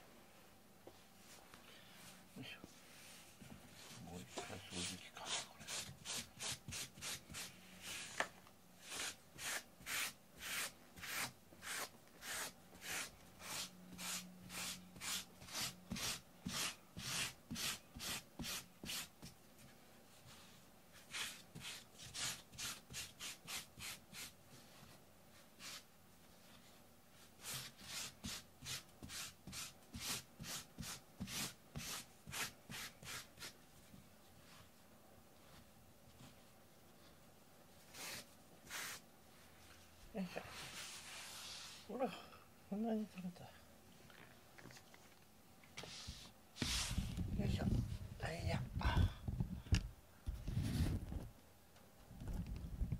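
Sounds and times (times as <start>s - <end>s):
brush rasping over carpet: 8.8s - 19.1s.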